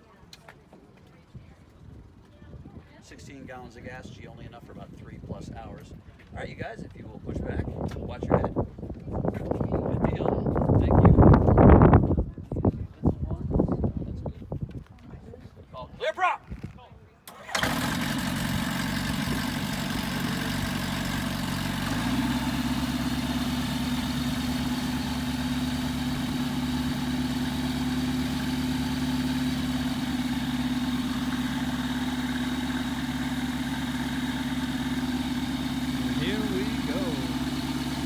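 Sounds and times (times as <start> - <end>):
airplane piston engine idling: 17.3 - 38.0.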